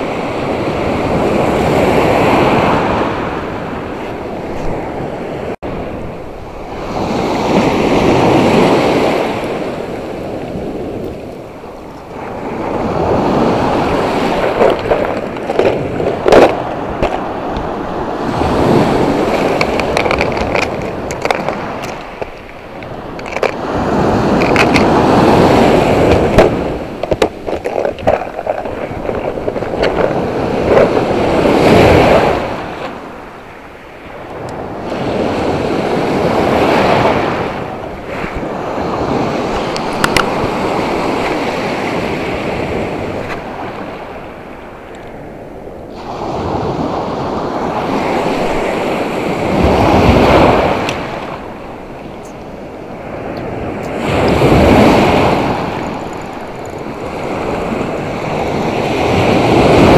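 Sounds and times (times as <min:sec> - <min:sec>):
waves washing up beach: 0:00.0 - 0:59.9.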